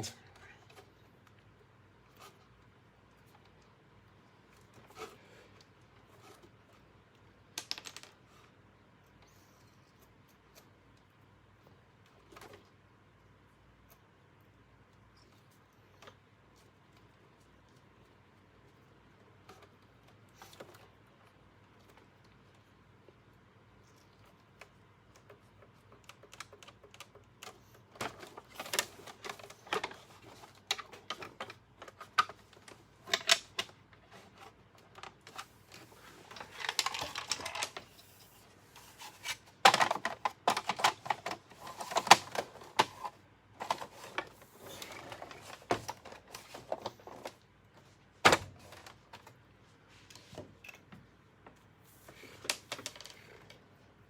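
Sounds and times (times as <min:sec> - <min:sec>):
plastic parts clicking and rattling: 0:04.5 - 0:08.6, 0:23.9 - 0:47.4, 0:51.5 - 0:53.7
cord rustling: 0:23.8 - 0:48.0.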